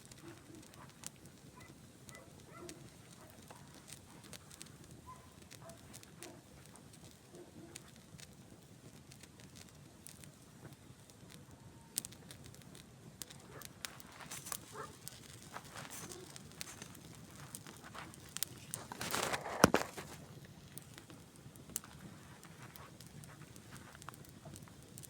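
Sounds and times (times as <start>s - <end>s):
campfire wood crackling: 0.0s - 25.0s.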